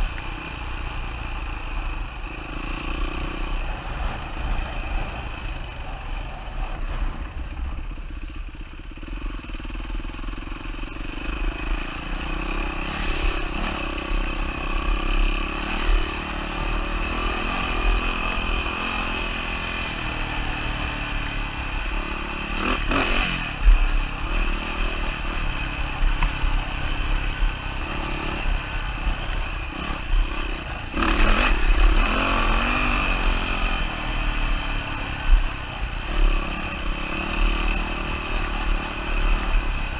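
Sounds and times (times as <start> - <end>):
dirt bike engine revving: 11.0 - 39.9.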